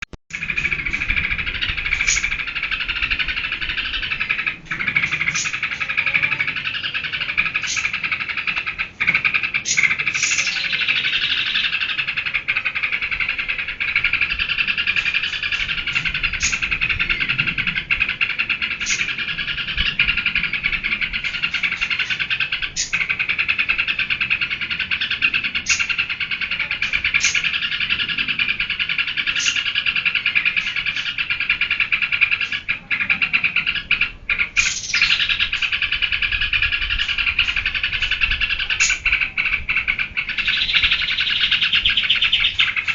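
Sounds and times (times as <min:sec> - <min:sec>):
bulbul chattering song: 0:00.3 - 0:42.9.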